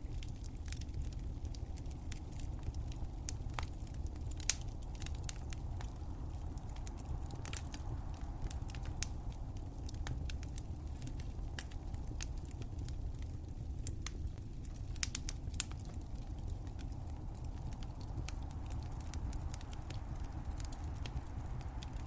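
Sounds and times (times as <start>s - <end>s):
low rumble of flames: 0.0s - 22.0s
wood fire crackling: 0.0s - 22.0s.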